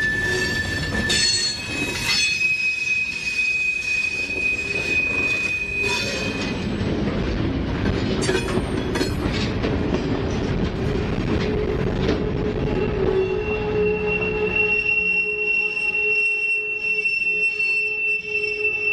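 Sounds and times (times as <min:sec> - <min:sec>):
high wheel squeal: 0:00.0 - 0:06.8, 0:12.6 - 0:18.9
low steady wheel squeal: 0:00.0 - 0:06.8, 0:12.4 - 0:18.9
steel wheels rumbling on rail: 0:00.0 - 0:18.9
clanks and rattles: 0:05.9 - 0:12.7.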